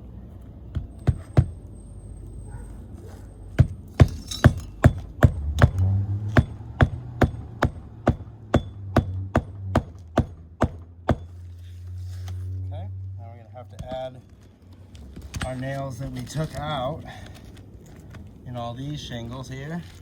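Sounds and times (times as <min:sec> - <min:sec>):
hammer striking nails: 0:00.7 - 0:01.6, 0:03.6 - 0:11.4.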